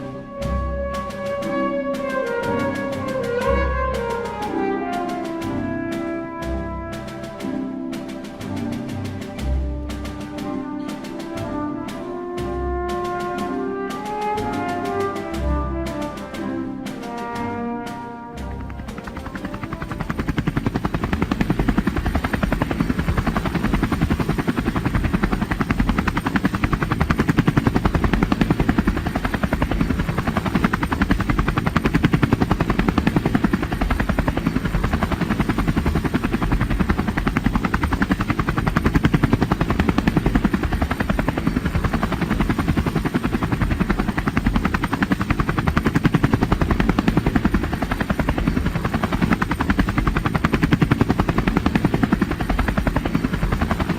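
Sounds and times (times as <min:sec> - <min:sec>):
pulsing mechanical running noise: 0:18.4 - 0:53.9.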